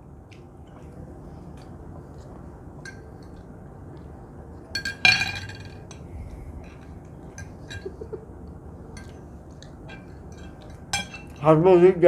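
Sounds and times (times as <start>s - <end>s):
cutlery clinking against plates: 2.8s - 3.5s, 4.7s - 6.1s, 6.7s - 8.2s, 8.9s - 11.5s.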